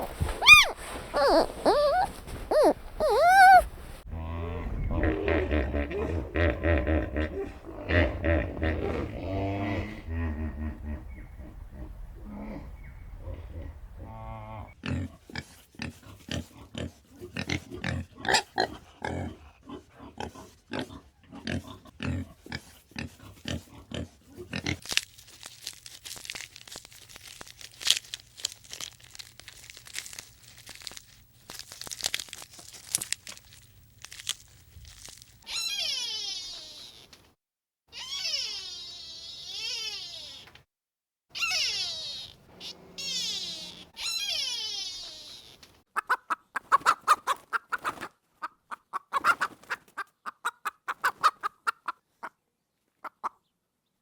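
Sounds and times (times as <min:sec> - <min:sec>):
high drawn-out animal calls: 0:00.0 - 0:03.9, 0:35.5 - 0:37.1, 0:37.9 - 0:40.5, 0:41.4 - 0:46.1
animals crunching and chewing: 0:00.0 - 0:04.1, 0:14.8 - 0:19.0, 0:21.5 - 0:35.5
animal grunts: 0:00.0 - 0:24.8.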